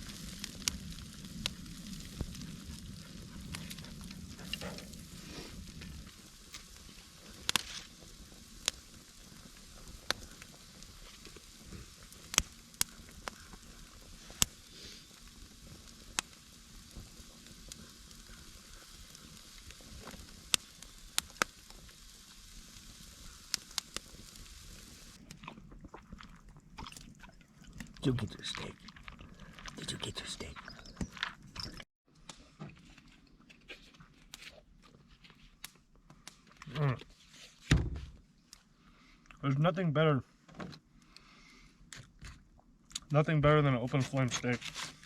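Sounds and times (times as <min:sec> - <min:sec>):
food sizzling over campfire: 0:00.0 - 0:31.9, 0:33.6 - 0:40.1, 0:40.8 - 0:45.0
sharp crackling pops: 0:00.0 - 0:32.4.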